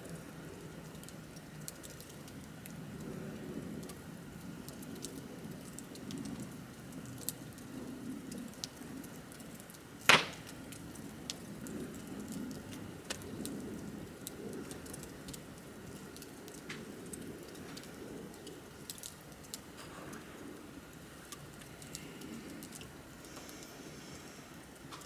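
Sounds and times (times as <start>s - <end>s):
bonfire crackling: 0.1s - 19.8s, 20.4s - 23.6s
loud sharp pop of fire: 10.1s - 10.8s.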